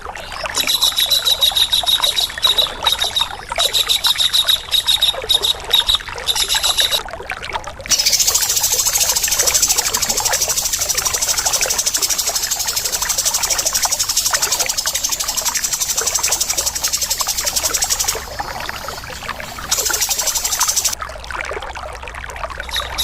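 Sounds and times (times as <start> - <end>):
bird harsh rattling call: 7.9 - 21.0.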